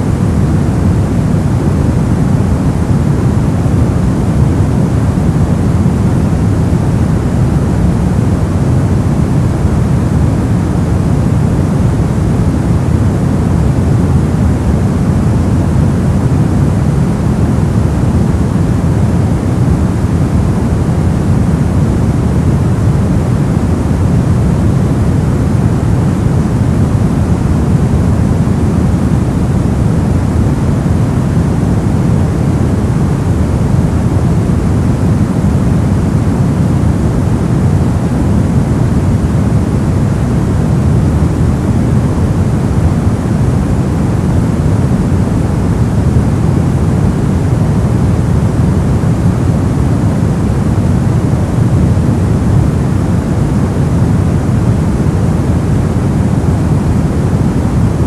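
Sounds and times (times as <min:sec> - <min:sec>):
brown noise: 0:00.0 - 0:58.0.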